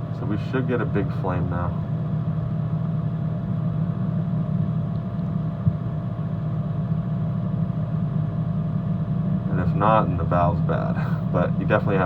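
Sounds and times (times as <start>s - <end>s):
furnace humming: 0.0s - 12.0s.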